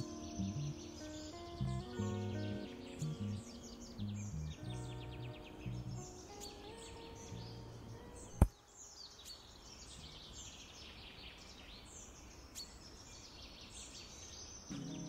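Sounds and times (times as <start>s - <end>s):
music: 0.0s - 8.4s, 14.7s - 15.0s
birds chirping and trilling: 0.0s - 15.0s.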